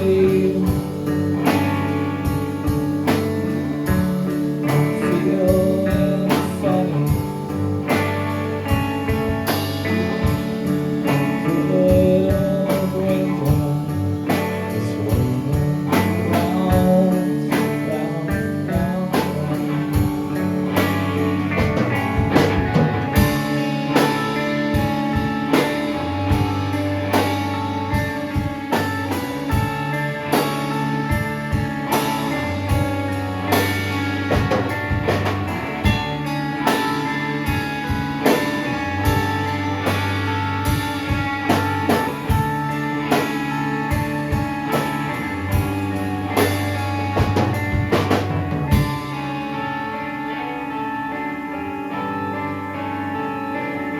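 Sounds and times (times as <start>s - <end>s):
drum kit beat: 0.0s - 49.9s
guitars: 0.0s - 53.9s
live rock band playing: 0.0s - 53.9s.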